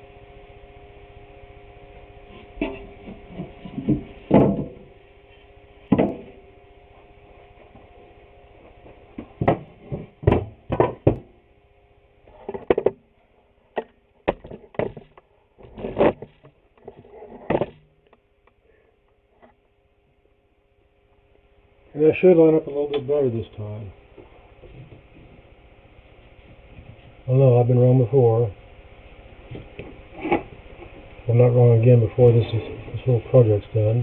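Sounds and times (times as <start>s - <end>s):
wooden boards knocking: 3.8s - 4.8s, 5.9s - 6.3s, 9.3s - 11.3s.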